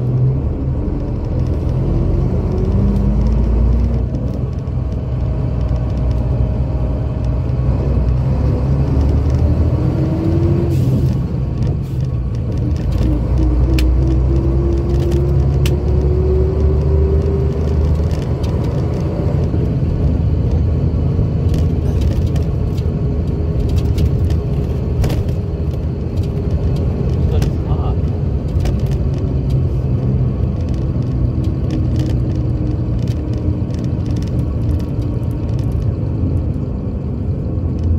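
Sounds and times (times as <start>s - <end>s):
sharp clicks and rattles: 0.2s - 10.1s, 11.0s - 37.9s
diesel engine revving under load: 6.6s - 12.0s.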